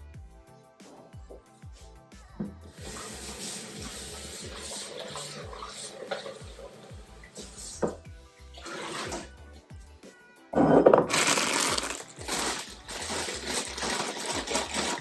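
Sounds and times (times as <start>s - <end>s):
background music: 0.0s - 15.0s
tap running into sink: 2.4s - 8.0s, 8.6s - 9.3s.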